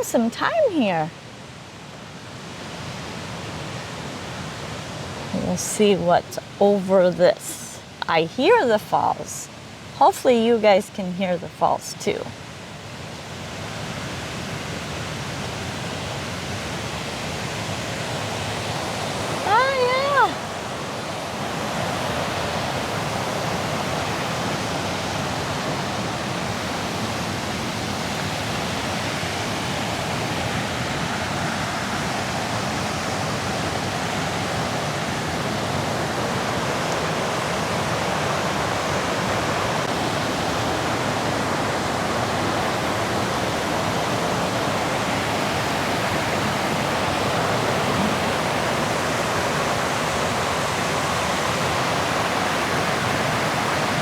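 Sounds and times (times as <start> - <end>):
waterfall rushing: 13.8 - 54.0.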